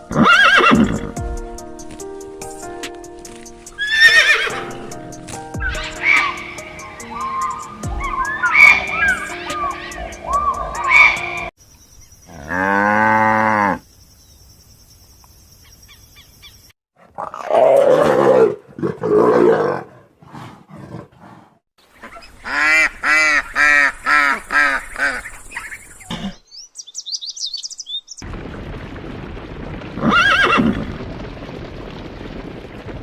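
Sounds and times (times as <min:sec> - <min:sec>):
repeated pitched animal cries: 0:05.6 - 0:11.5.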